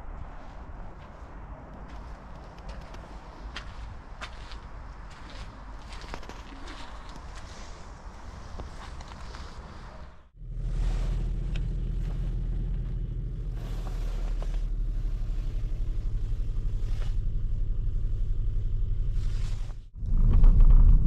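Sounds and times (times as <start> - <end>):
car engine running: 10.4 - 21.0.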